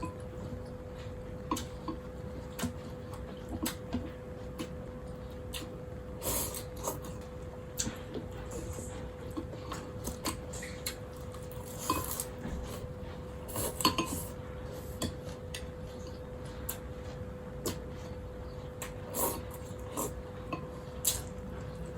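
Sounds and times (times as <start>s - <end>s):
faint steady hum: 0.0s - 21.9s
utensils clinking against bowl: 13.7s - 14.4s.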